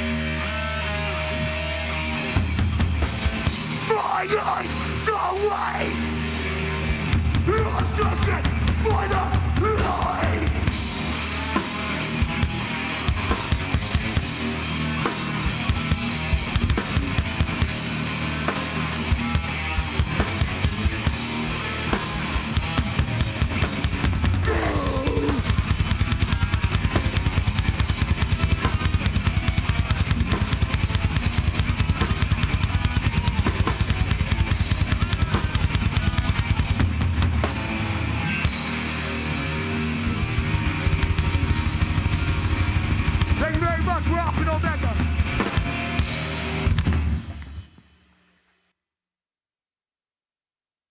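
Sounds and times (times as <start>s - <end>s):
heavy live band playing: 0.0s - 47.5s
pounding drum kit: 0.0s - 47.8s.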